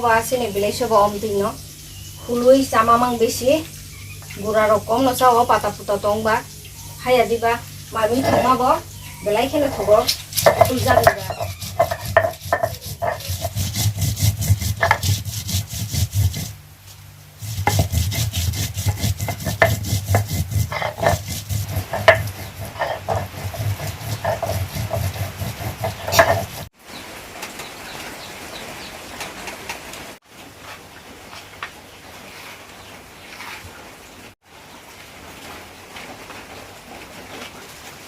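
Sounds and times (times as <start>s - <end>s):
kitchen utensil scraping food: 8.0s - 16.6s, 17.4s - 26.7s.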